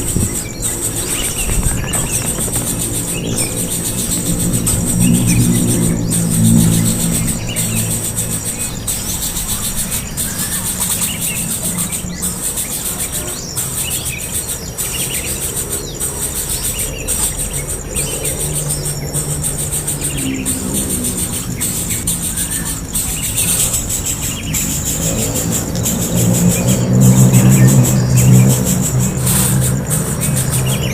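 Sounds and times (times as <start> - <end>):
low hum: 0.0 - 13.3, 15.4 - 30.9
bird chirps: 0.0 - 30.9
high insect buzz: 0.0 - 30.9.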